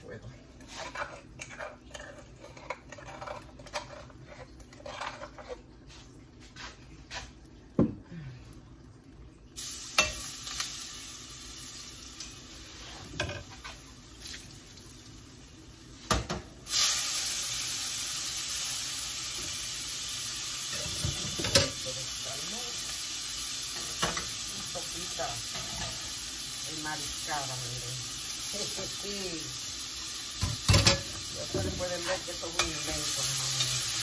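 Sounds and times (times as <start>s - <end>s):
shrimp sizzling in a frying pan: 9.6s - 34.0s.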